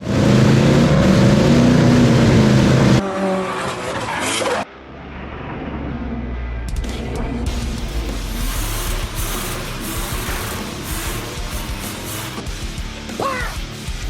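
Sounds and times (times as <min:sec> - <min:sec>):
car engine at high revs: 0:00.0 - 0:13.2
dull low drone: 0:04.7 - 0:13.0.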